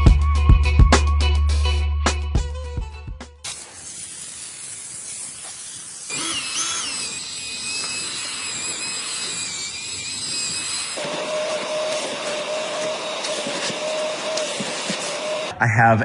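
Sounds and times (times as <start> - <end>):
high-pressure jet hissing: 3.4 - 15.5
thin high whistling tones: 4.2 - 15.5.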